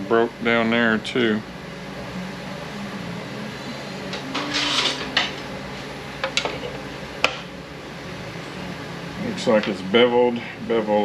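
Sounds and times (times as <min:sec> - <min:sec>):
steady hum: 0:00.0 - 0:11.0
metal scraping: 0:03.6 - 0:06.0.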